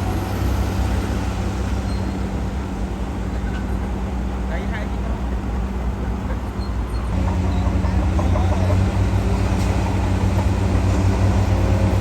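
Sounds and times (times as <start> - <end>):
heavy diesel engine droning: 6.8 - 12.0.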